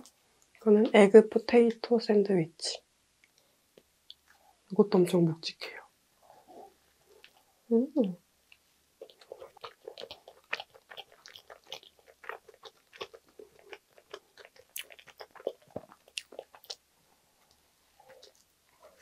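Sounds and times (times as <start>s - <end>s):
close-miked chewing: 6.4s - 19.0s.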